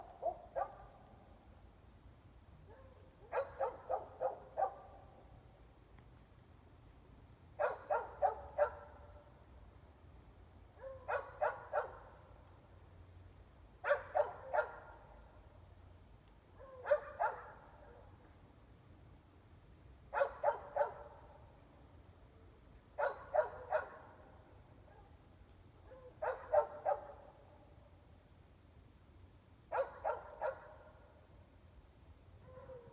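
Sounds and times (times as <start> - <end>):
distant dogs barking: 0.0 - 1.1, 2.7 - 5.2, 7.6 - 9.3, 10.8 - 12.5, 13.8 - 15.3, 16.5 - 18.2, 20.1 - 21.4, 23.0 - 25.2, 25.8 - 27.7, 29.7 - 31.0, 32.4 - 32.9.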